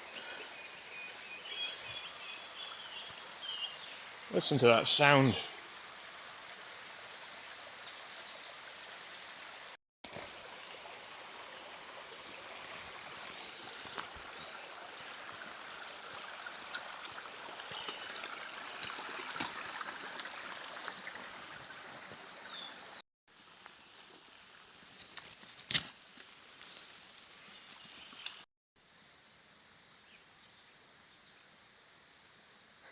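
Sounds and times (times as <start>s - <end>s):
stream rushing: 0.0s - 23.0s.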